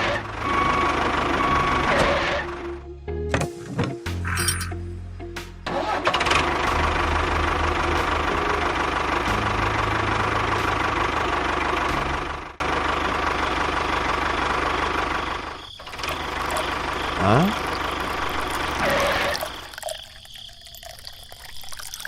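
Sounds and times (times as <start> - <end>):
tractor engine running: 0.0 - 2.9, 5.6 - 19.7.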